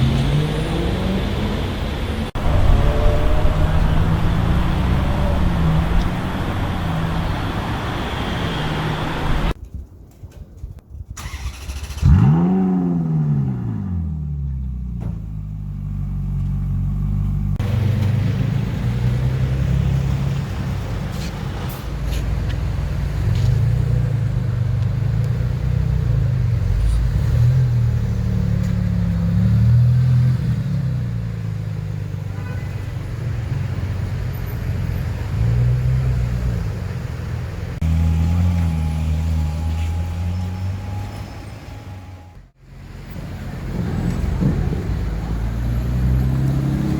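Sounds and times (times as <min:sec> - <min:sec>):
car engine starting and revving: 0:00.0 - 0:09.6, 0:11.2 - 0:32.2, 0:33.7 - 0:46.9.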